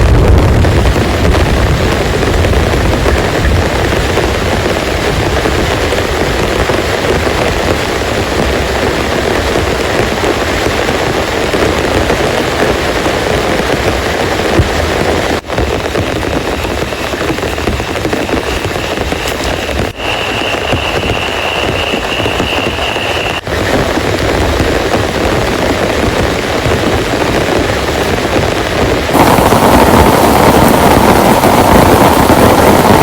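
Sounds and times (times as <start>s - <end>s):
heavy rain pouring: 0.0s - 33.0s
thunder rumbling low: 0.0s - 33.0s.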